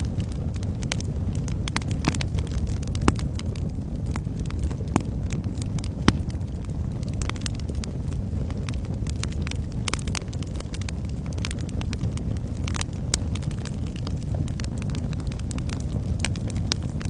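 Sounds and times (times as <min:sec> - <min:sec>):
low roar of flames: 0:00.0 - 0:17.0
wood fire crackling: 0:00.0 - 0:17.0
sharp pops and snaps of wood: 0:01.7 - 0:03.2, 0:04.1 - 0:06.4.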